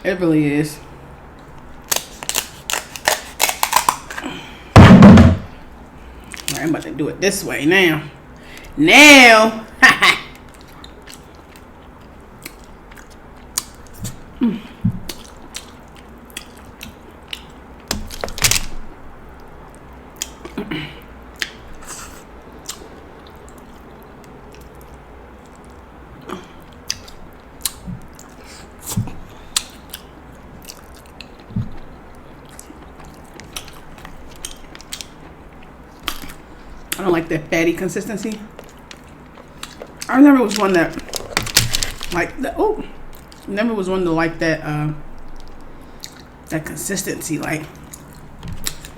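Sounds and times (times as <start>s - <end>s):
person chewing crab: 1.2s - 4.7s, 10.3s - 37.0s, 38.3s - 42.2s, 45.1s - 46.4s, 47.7s - 48.9s.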